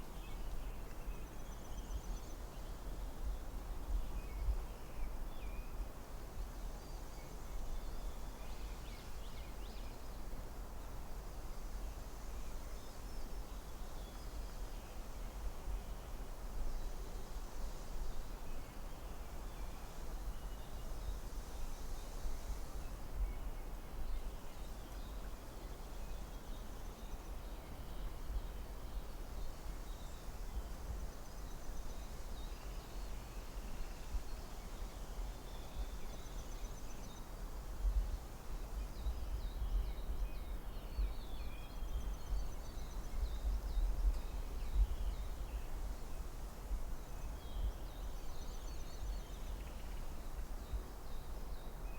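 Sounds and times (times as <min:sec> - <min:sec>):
soft even hiss: 0:00.0 - 0:51.9
low rumble of wind: 0:22.0 - 0:51.9.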